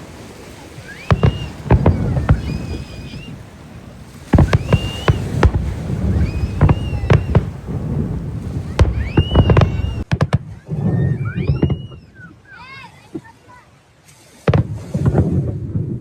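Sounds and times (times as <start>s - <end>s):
fireworks bangs: 0.6s - 12.3s, 14.4s - 16.0s
rising whistles: 0.7s - 3.5s, 4.3s - 12.6s.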